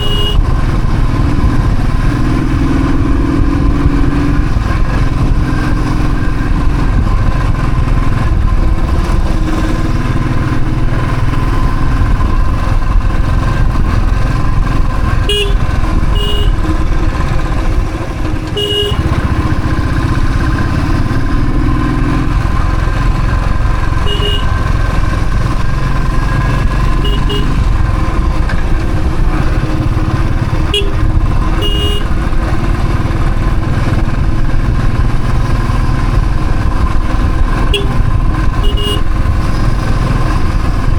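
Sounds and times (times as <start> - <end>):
horn toots: 0.0 - 0.6, 15.1 - 16.8, 18.5 - 19.4, 23.8 - 24.8, 26.2 - 27.8, 30.5 - 32.3, 37.6 - 39.5
motorcycle engine running: 0.0 - 40.9
road rumble: 0.0 - 40.9.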